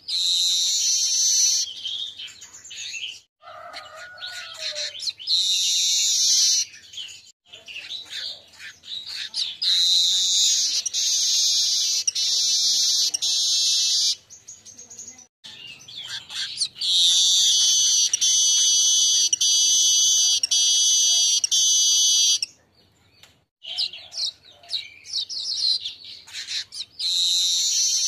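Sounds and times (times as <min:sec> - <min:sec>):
bird chattering notes: 0:07.8 - 0:14.2, 0:16.0 - 0:22.5
bird buzzy trill: 0:17.2 - 0:22.5.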